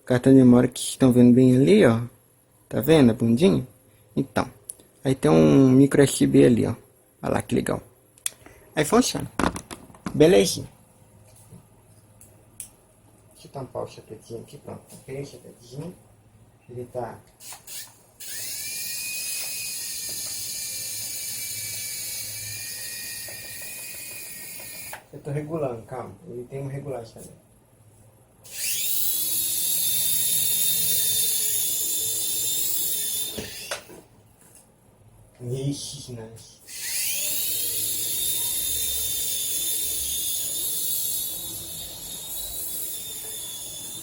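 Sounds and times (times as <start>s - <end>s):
toy helicopter motor whine: 17.4s - 25.0s, 28.4s - 33.9s, 36.7s - 44.0s.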